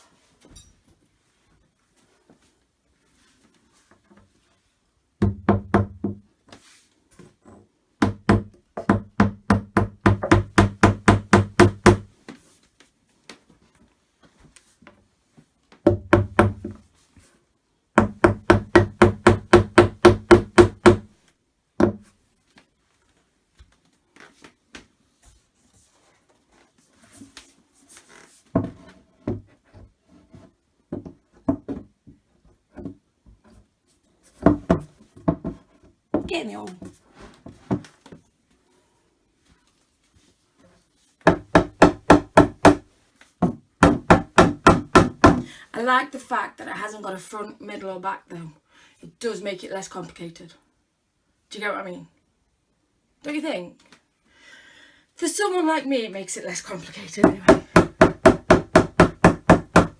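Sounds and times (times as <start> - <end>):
mallet knocking wooden panels: 5.2 - 6.2, 8.0 - 12.1, 15.8 - 16.8, 18.0 - 21.1, 41.3 - 42.8, 43.4 - 45.5, 57.2 - 59.9.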